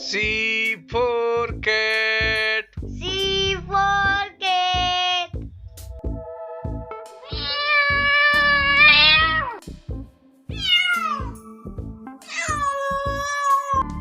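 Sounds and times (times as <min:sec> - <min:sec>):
background music with beat: 0:00.0 - 0:14.0
cat meowing: 0:07.2 - 0:09.6, 0:10.5 - 0:11.4, 0:12.2 - 0:13.9.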